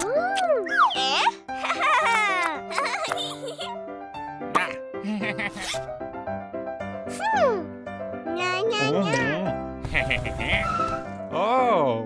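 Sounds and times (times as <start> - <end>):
cartoon background music: 0.0 - 12.0
squeaky sliding sound effects: 10.2 - 11.2.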